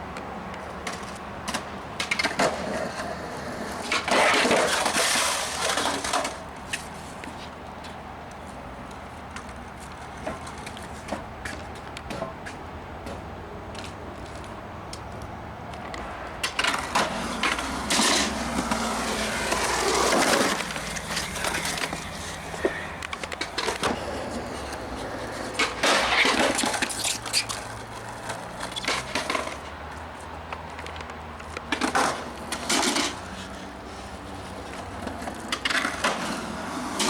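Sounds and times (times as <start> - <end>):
skateboard rolling and clacking: 0.8 - 6.5, 16.0 - 29.8, 30.6 - 37.0.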